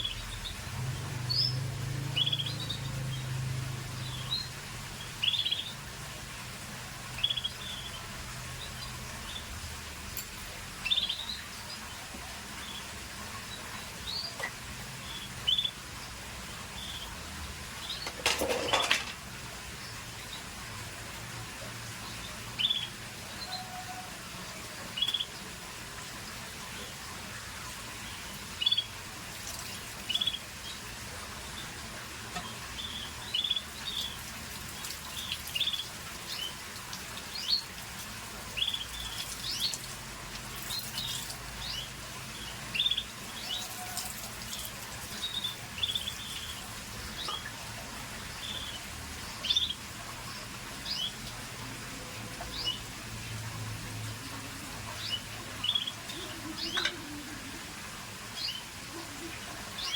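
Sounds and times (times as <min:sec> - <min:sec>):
canary chirps: 0:00.0 - 0:05.9, 0:07.1 - 0:09.7, 0:10.8 - 0:12.0, 0:12.6 - 0:16.1, 0:22.0 - 0:24.1, 0:25.0 - 0:25.4, 0:28.0 - 0:31.8, 0:32.4 - 0:37.9, 0:38.5 - 0:51.2, 0:52.5 - 0:52.9, 0:54.9 - 0:57.6, 0:58.3 - 0:59.9.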